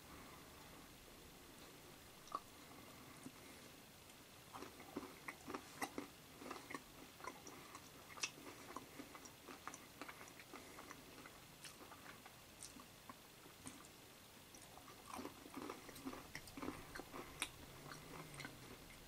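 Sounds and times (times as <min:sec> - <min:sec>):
person crunching chocolate: 0:14.6 - 0:18.6.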